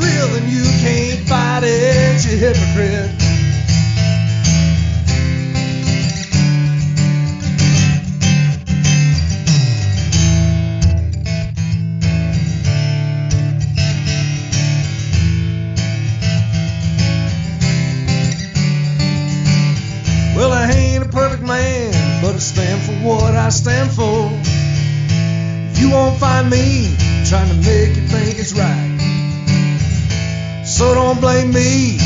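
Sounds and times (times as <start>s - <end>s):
country-rock guitars: 0.0s - 32.0s.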